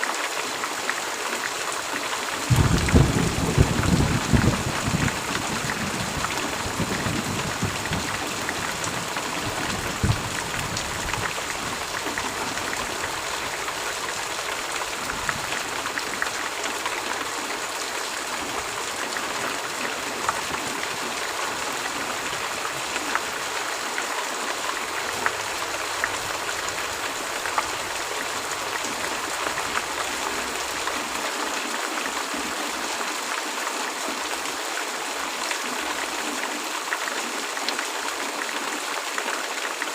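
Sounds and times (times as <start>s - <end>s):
heavy rain: 0.0s - 39.9s
low rumble of thunder: 2.5s - 11.8s.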